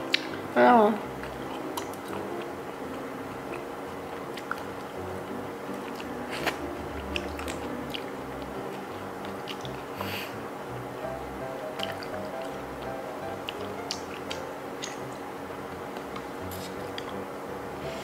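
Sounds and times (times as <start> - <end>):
soft background music: 0.0 - 18.0
chewing and wet mouth sounds: 1.1 - 5.1, 5.7 - 10.3, 11.7 - 17.3.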